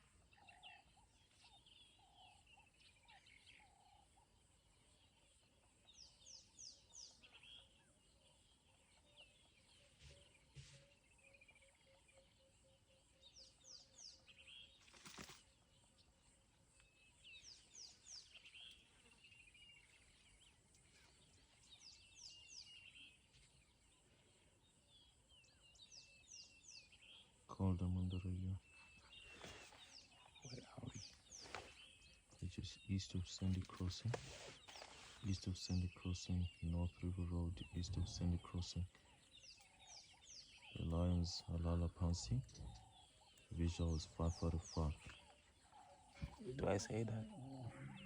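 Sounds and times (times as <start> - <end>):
faint bush ambience: 0.0 - 48.0
bird chirping and trilling: 25.0 - 48.0.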